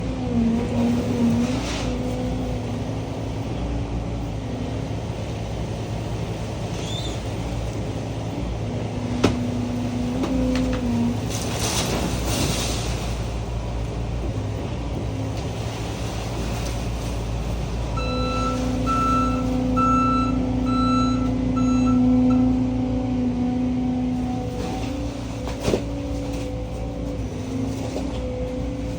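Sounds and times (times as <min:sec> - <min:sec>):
diesel engine running: 0:00.0 - 0:28.9
engine whine under load: 0:00.0 - 0:28.9
backup alarm beeping: 0:18.0 - 0:22.6.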